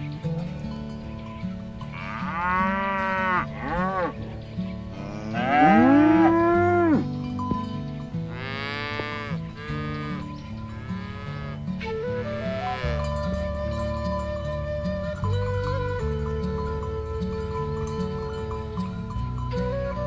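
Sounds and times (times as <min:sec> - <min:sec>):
background music low melody: 0:00.0 - 0:20.0
cows mooing: 0:01.8 - 0:07.2, 0:08.2 - 0:11.9, 0:12.6 - 0:14.0.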